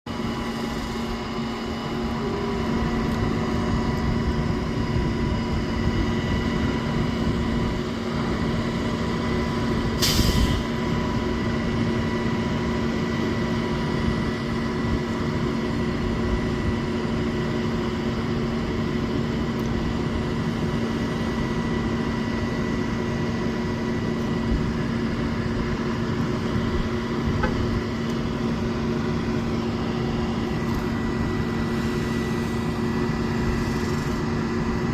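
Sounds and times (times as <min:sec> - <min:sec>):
crane engine humming: 0:00.1 - 0:34.9
burst of hiss: 0:10.0 - 0:10.6.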